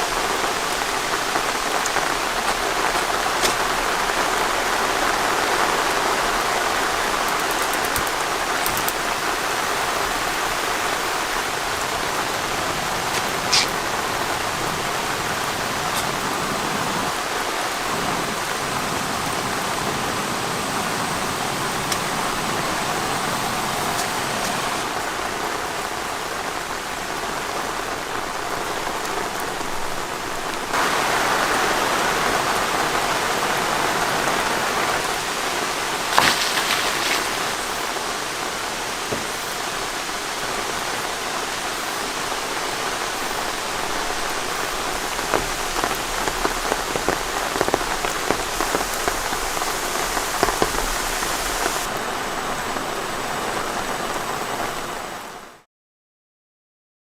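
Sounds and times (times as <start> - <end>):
steady rain hiss: 0.0 - 55.6
raindrop taps: 0.5 - 4.5, 6.9 - 9.3, 36.1 - 37.7, 45.0 - 51.9.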